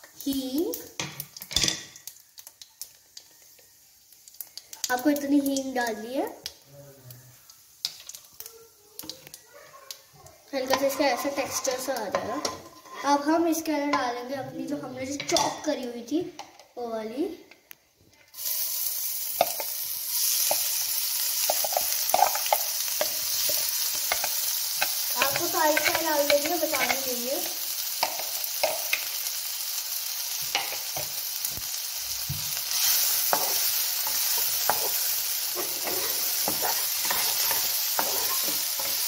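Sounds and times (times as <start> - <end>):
vegetables frying in oil: 0.0 - 14.0, 18.3 - 39.0
spatula scraping a pan: 10.6 - 13.3, 21.4 - 27.2, 32.7 - 39.0.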